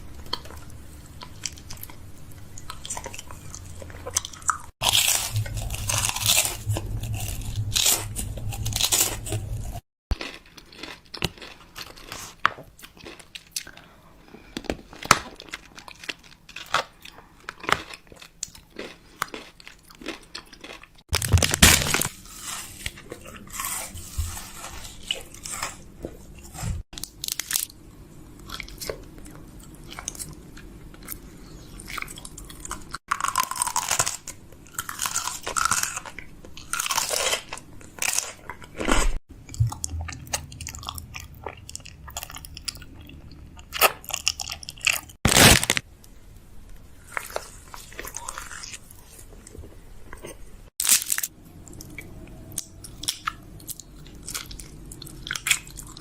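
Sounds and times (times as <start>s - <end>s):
packaging rustling: 21.2s - 22.9s, 45.2s - 45.8s.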